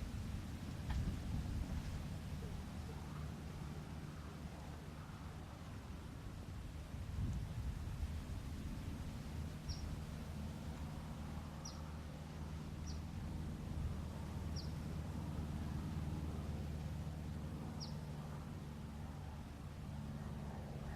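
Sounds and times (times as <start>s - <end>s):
steady low hum: 0.0s - 20.9s
small bird chirping: 14.5s - 14.8s, 17.8s - 18.1s.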